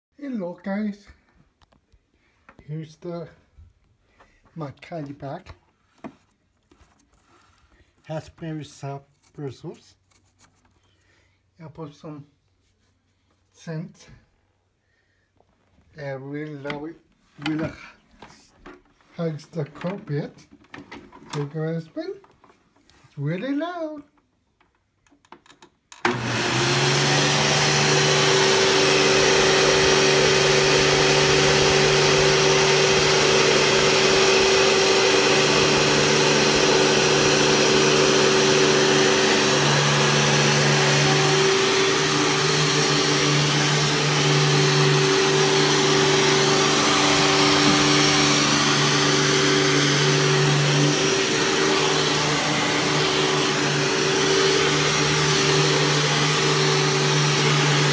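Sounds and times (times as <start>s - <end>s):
vacuum cleaner running on carpet: 26.0s - 57.9s
vacuum cleaner switching on: 26.0s - 57.9s.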